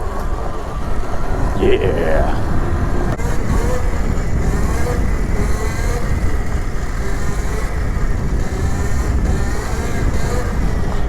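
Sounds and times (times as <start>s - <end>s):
wind and tyre rumble: 2.4s - 11.0s.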